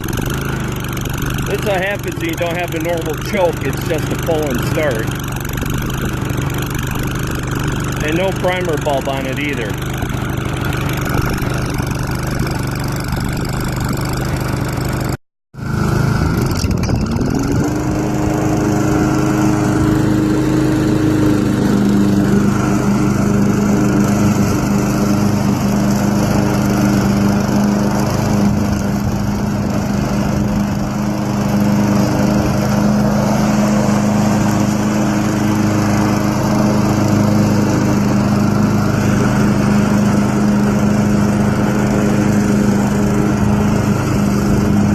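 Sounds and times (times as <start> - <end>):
lawn mower engine running: 0.0 - 44.9.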